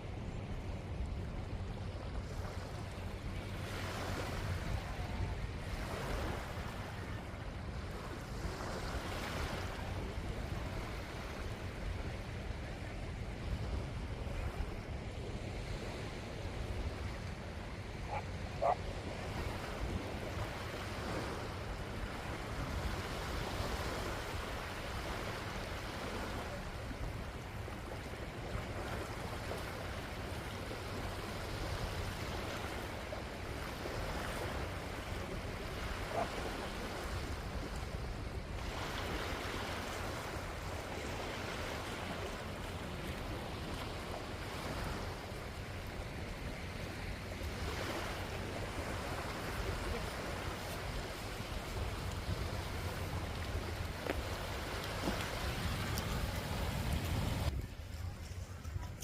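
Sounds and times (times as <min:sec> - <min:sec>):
surf washing onto a beach: 0:00.0 - 0:59.0
wind rumbling on microphone: 0:00.0 - 0:59.0.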